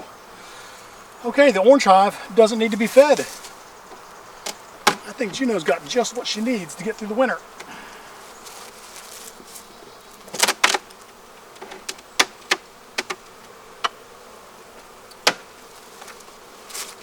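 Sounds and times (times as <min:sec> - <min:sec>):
bees buzzing: 0:00.0 - 0:17.0
hive parts knocking and clicking: 0:03.4 - 0:05.2, 0:10.3 - 0:11.0, 0:11.6 - 0:14.0.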